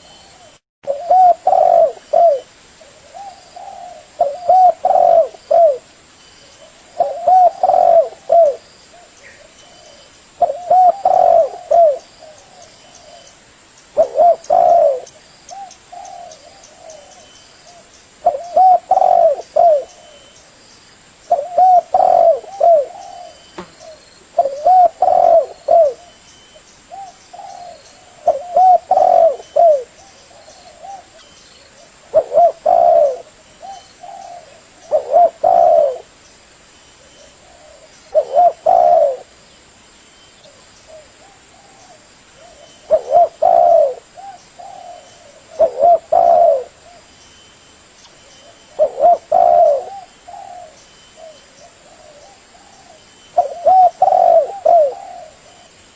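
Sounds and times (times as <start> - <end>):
dove cooing: 0.0 - 5.9, 6.5 - 13.4, 14.0 - 20.4, 21.3 - 26.2, 26.9 - 36.2, 37.0 - 39.4, 40.4 - 47.1, 48.4 - 55.9.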